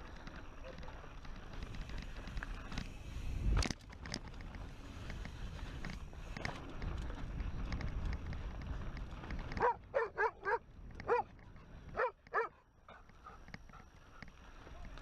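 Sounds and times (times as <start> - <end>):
low rumble of wind: 0.0 - 15.0
dog barking: 9.6 - 11.3, 12.0 - 13.0.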